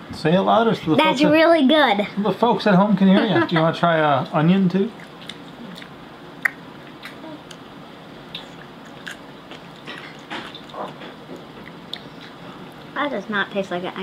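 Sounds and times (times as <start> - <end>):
child chewing: 4.9 - 7.6, 8.3 - 13.0.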